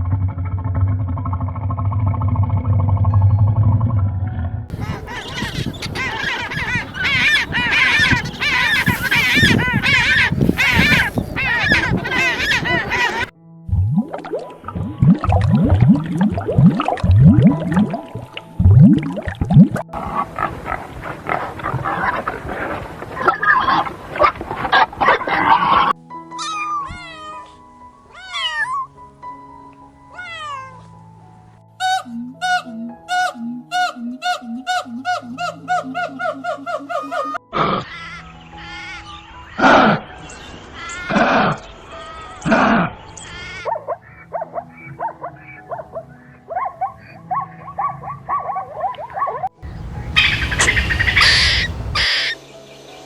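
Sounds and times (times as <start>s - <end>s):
background music with held notes: 3.0s - 53.0s
animal yelping calls: 4.7s - 13.3s, 25.0s - 28.9s, 30.1s - 30.9s, 42.4s - 52.4s
loud pitched animal call: 4.7s - 13.3s, 49.7s - 52.4s
cat meowing: 4.8s - 13.3s, 26.4s - 27.5s, 28.1s - 28.9s, 30.1s - 30.8s.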